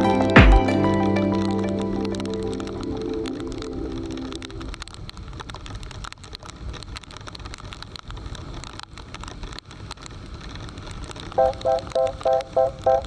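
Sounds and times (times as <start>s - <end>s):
music: 0.0s - 4.7s
heavy rain rushing: 0.0s - 6.3s
raindrops crackling on microphone: 0.0s - 13.0s.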